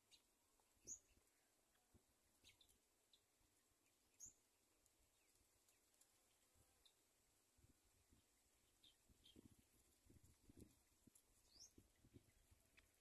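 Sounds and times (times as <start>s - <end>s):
high bird chirps: 11.4s - 12.2s.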